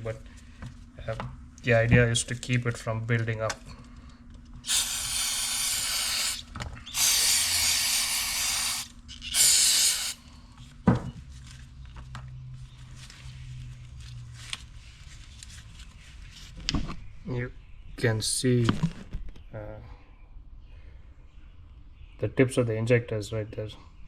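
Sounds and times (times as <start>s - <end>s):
aerosol can spraying: 4.7s - 10.2s.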